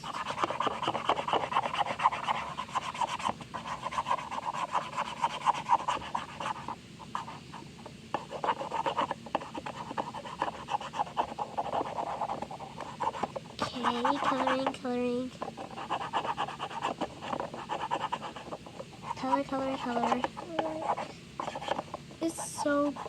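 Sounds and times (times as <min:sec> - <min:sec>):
marker scribbling on plastic: 0:00.0 - 0:23.0.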